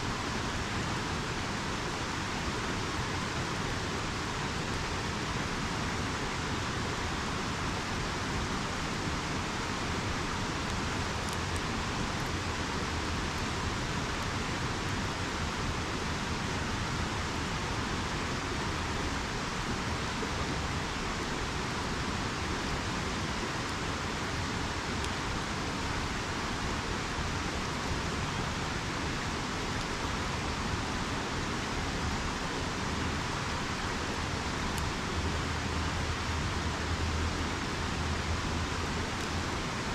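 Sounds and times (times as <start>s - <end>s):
river rushing: 0.0s - 39.9s
campfire ticks: 10.1s - 14.3s, 22.3s - 25.4s.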